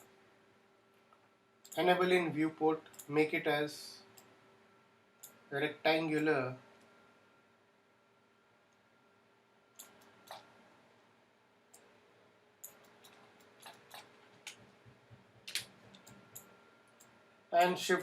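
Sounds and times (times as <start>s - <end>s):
computer mouse clicks: 9.8s - 10.5s, 12.6s - 17.2s.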